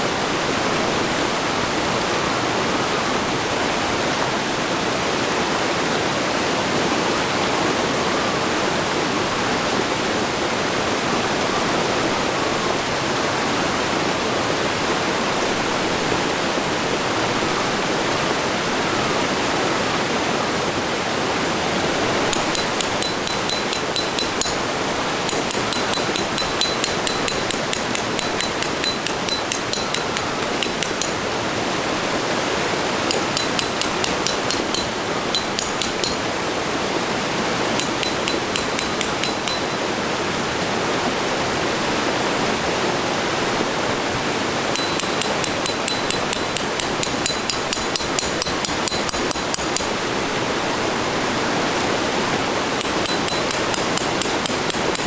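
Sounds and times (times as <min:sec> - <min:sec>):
hammer striking metal stakes: 0:22.2 - 0:31.4, 0:33.1 - 0:36.4, 0:37.8 - 0:40.0, 0:44.8 - 0:50.1, 0:52.8 - 0:55.0.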